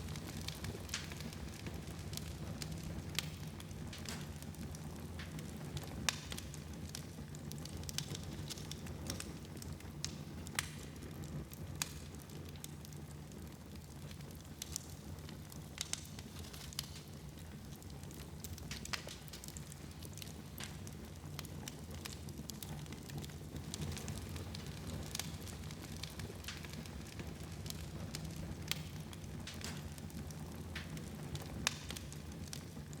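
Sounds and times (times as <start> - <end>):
fire crackling and popping: 0.0 - 33.0
fire low rumble: 0.0 - 33.0.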